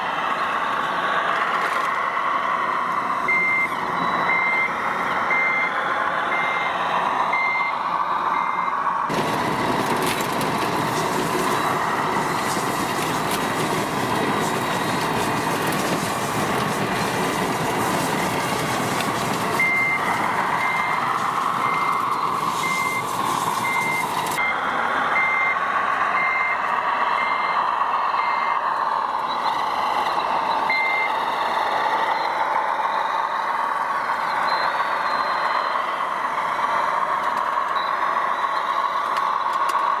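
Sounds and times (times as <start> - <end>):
machine engine: 0.0 - 40.0
high reversing beeps: 3.1 - 9.0, 11.4 - 12.6, 13.6 - 15.2, 19.5 - 36.9, 37.7 - 39.5
loud rushing noise: 5.9 - 33.8.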